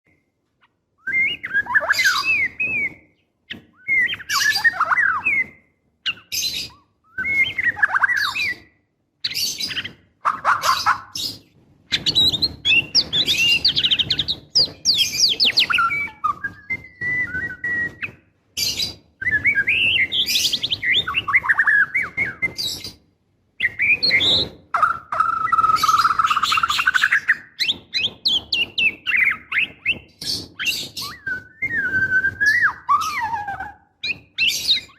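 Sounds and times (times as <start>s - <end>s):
bird whistling and chattering: 1.0s - 23.0s, 23.6s - 34.9s.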